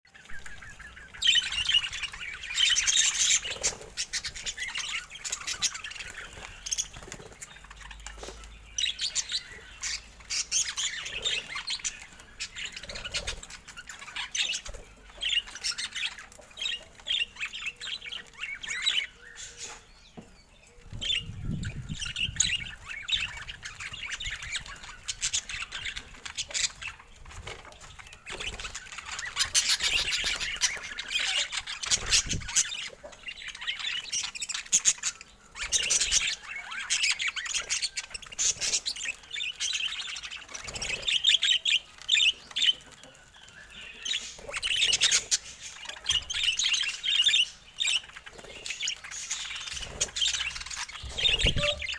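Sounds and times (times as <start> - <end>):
budgerigars chattering and chirping: 0.2 - 51.9.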